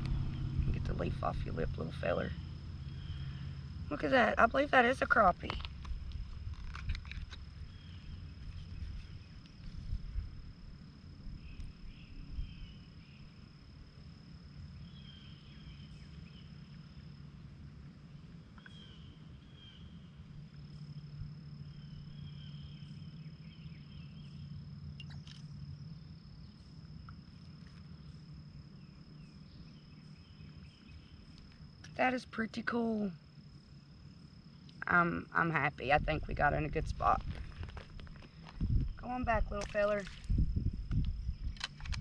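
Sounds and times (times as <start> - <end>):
low rumble: 0.0 - 13.4, 35.4 - 42.0
high insect trill: 0.0 - 42.0.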